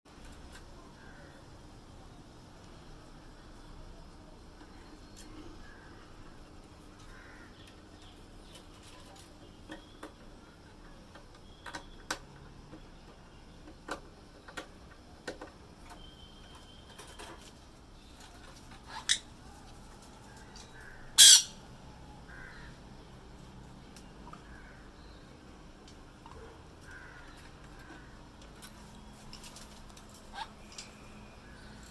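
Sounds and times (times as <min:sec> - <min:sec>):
birds squawking and calling: 0:07.0 - 0:10.1, 0:20.0 - 0:22.9, 0:26.3 - 0:31.9.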